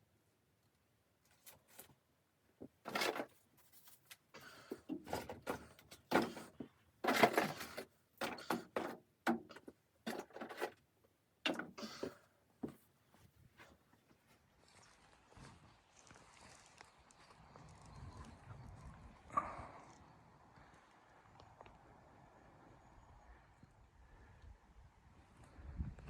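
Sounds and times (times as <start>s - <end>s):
handling scuffs and knocks: 11.8s - 14.1s.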